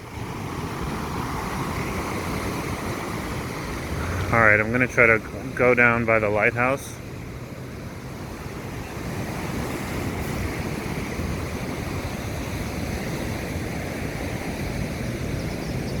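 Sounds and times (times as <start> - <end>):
wind on microphone: 0.0 - 5.6
ocean surf breaking: 0.0 - 16.0.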